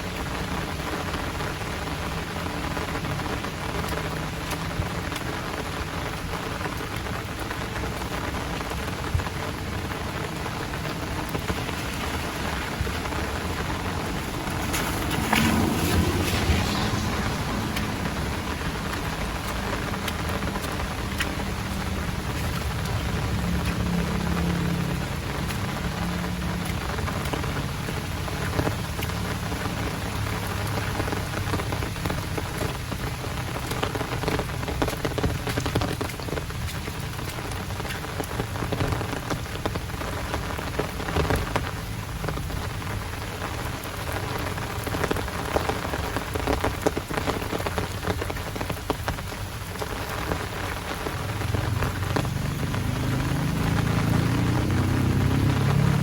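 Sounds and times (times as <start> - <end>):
heavy rain falling: 0.0 - 56.0
low engine hum: 0.0 - 56.0.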